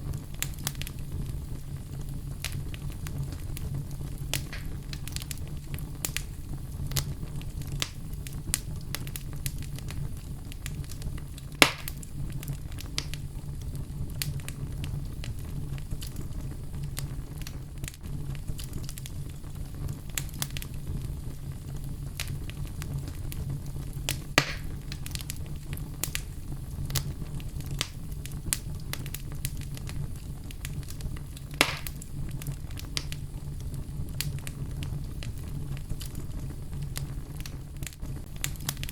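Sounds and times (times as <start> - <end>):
fire crackling in fireplace: 0.0 - 38.9
loud sharp pops: 4.3 - 5.1, 11.6 - 12.0, 24.1 - 25.1, 31.5 - 32.0.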